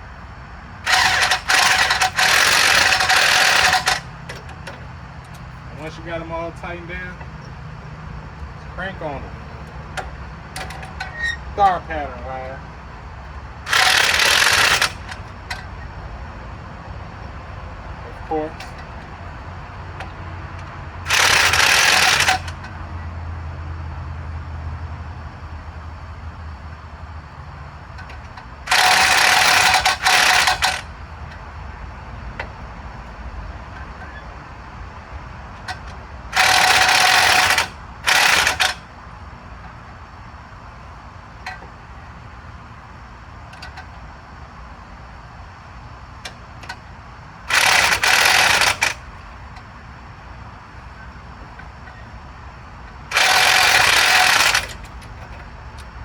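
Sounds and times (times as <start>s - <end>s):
impact wrench bursts: 0.8s - 7.5s, 8.3s - 16.0s, 17.9s - 22.9s, 27.9s - 31.5s, 35.5s - 39.0s, 46.1s - 55.9s.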